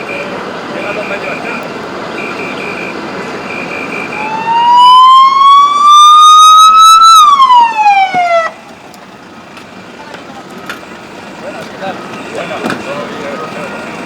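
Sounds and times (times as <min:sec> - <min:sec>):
reversing alarm beeping: 0:00.0 - 0:08.5
emergency siren wailing: 0:00.0 - 0:08.7
engine running: 0:06.6 - 0:14.0.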